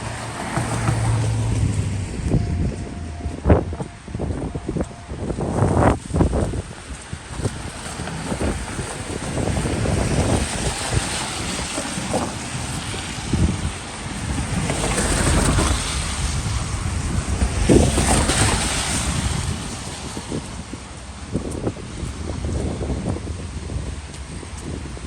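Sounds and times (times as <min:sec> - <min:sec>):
steady low rumble: 0:00.0 - 0:07.6
vehicles passing: 0:00.0 - 0:25.0
wind buffeting microphone: 0:00.0 - 0:25.0
traffic hiss on wet streets: 0:04.1 - 0:25.0.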